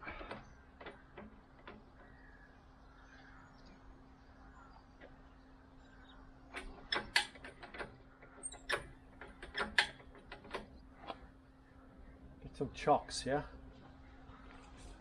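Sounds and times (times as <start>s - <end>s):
clicks and knocks on metal: 0.0s - 2.2s, 6.5s - 11.2s.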